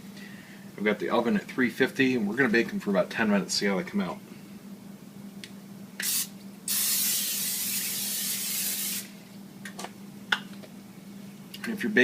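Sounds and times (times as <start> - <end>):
aerosol spray hissing: 6.0 - 9.1.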